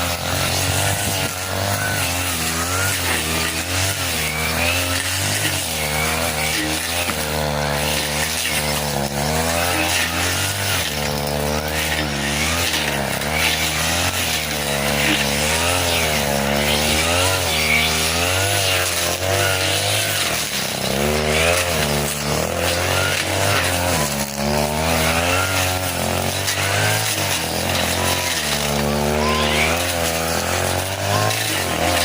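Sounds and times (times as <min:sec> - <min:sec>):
brush cutter engine revving: 0:00.0 - 0:32.0.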